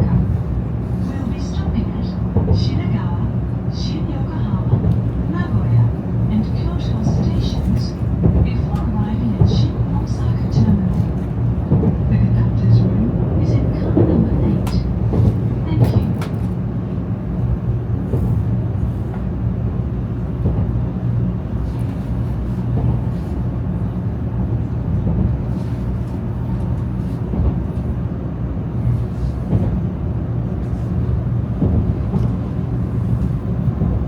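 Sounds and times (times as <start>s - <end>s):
train running rumble and hiss: 0.0s - 34.0s.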